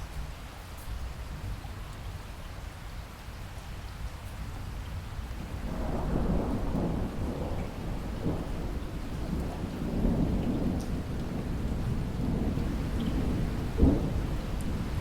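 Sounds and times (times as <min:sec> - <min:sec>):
steady rain: 0:00.0 - 0:15.0
low thunder rumbling: 0:05.4 - 0:15.0.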